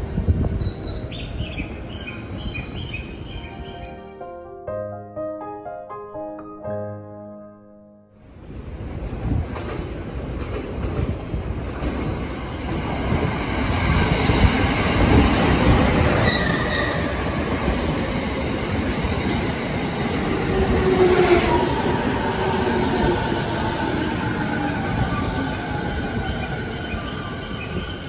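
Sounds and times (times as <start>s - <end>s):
train wheels rumbling on rail: 8.6s - 28.0s.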